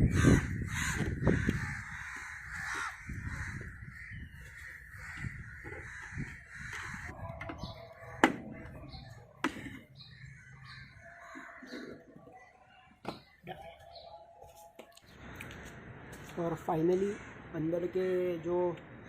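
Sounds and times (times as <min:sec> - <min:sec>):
crows cawing: 0:00.0 - 0:07.2, 0:09.4 - 0:12.2.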